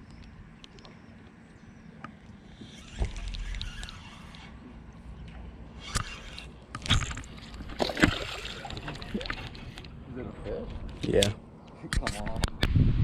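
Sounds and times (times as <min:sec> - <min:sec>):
water noise: 0:00.0 - 0:10.2.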